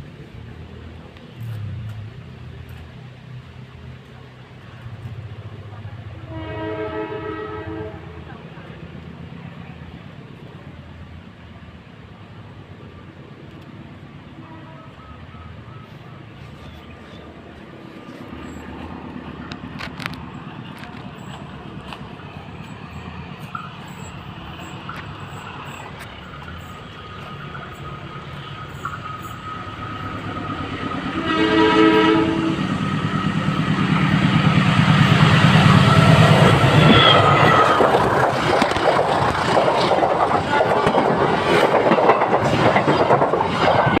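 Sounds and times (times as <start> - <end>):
train horn: 6.2 - 8.4, 14.4 - 15.5, 29.5 - 33.6, 35.1 - 37.6
train wheels clattering: 32.6 - 44.0.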